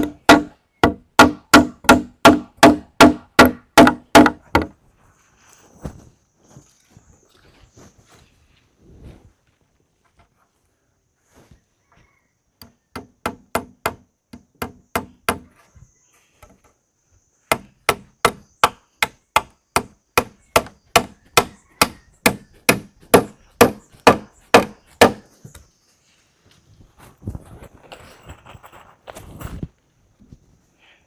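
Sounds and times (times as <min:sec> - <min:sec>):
hand tool striking wood: 0:00.0 - 0:04.7, 0:12.6 - 0:15.5, 0:17.5 - 0:25.2.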